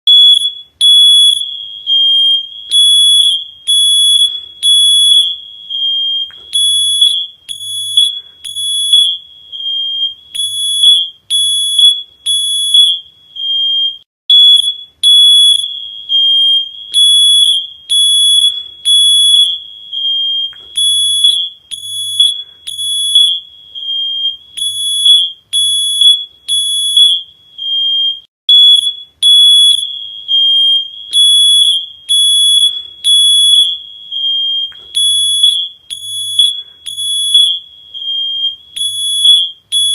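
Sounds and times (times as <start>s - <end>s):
smoke alarm beeping: 0.1s - 39.9s.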